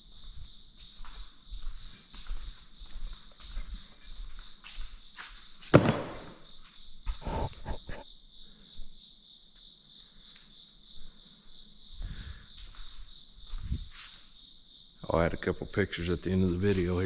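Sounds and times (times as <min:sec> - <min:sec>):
crickets chirring: 0:00.0 - 0:17.0
knocks: 0:05.7 - 0:06.4
loud thump: 0:05.7 - 0:06.4.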